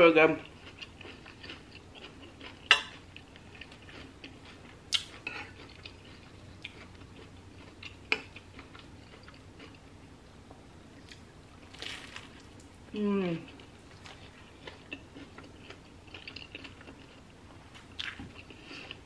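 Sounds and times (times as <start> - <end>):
chewing with wet mouth clicks: 0.5 - 9.8, 13.5 - 17.2.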